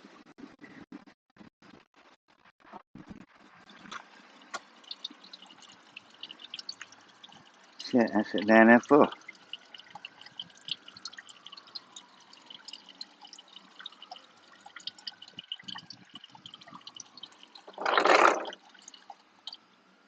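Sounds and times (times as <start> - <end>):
oil dripping into drain pan: 3.7 - 19.7.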